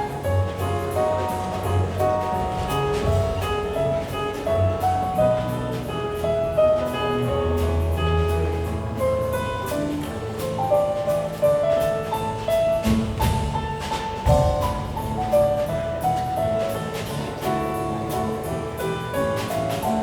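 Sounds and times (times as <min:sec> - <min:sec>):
jazz piano bass and drums: 0:00.0 - 0:20.0
drum hits: 0:01.0 - 0:06.2, 0:12.5 - 0:16.3.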